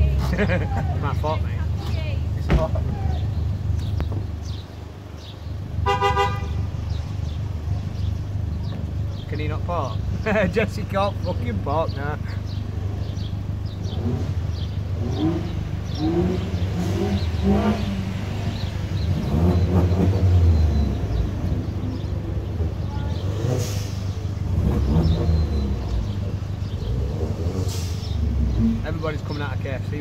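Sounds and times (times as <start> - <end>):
car engines idling: 0.0 - 30.0
car revving close by: 12.5 - 29.4.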